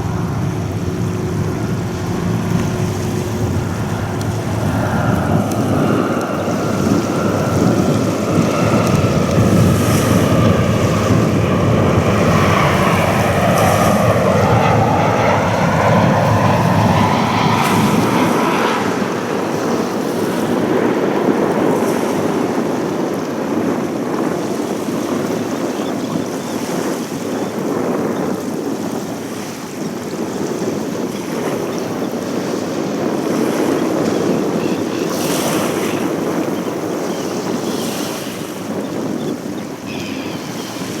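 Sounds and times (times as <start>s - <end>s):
jet engines passing: 0.0s - 41.0s
wind buffeting microphone: 0.0s - 41.0s.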